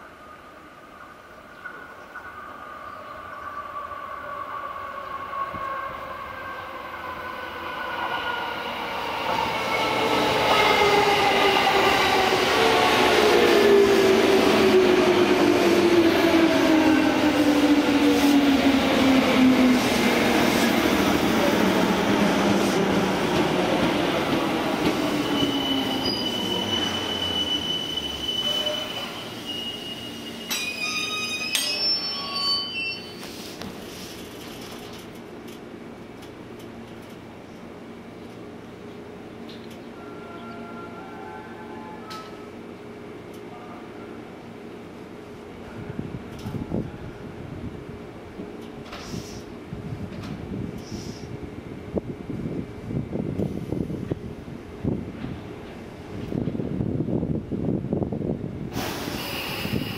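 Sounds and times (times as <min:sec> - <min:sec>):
high brake squeal: 0:25.1 - 0:33.6, 0:58.9 - 0:59.9
short clicks and hisses: 0:48.8 - 0:49.5, 0:50.8 - 0:51.3.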